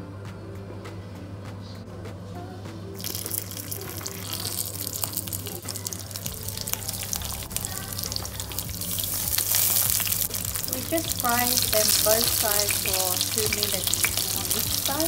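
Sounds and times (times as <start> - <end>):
hot oil sizzling and crackling: 3.0 - 15.0.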